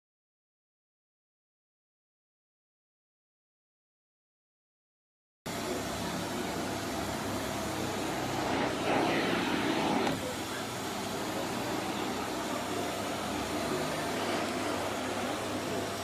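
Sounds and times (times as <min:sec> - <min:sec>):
vacuum cleaner running: 0:05.5 - 0:16.0.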